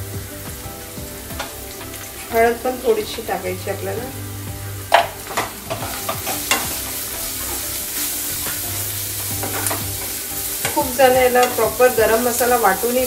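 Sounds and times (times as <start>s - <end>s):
onions sizzling in hot oil: 0.0s - 13.0s
spatula clicking and scraping pan: 4.9s - 12.6s.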